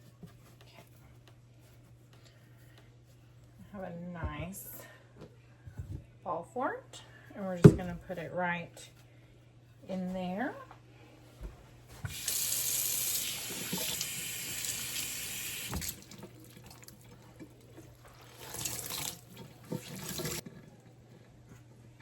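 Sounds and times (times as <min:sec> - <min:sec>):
kitchen tap running: 0:12.0 - 0:20.5.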